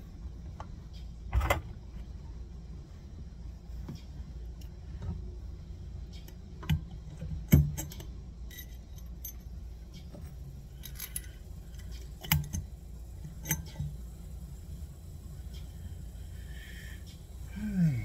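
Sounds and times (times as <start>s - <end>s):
metal clinks and knocks: 6.4s - 14.0s.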